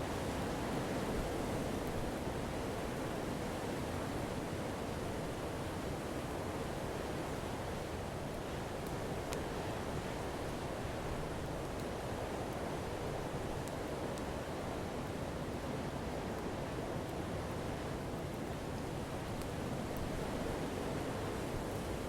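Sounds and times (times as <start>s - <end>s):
fire crackles: 4.8s - 22.0s.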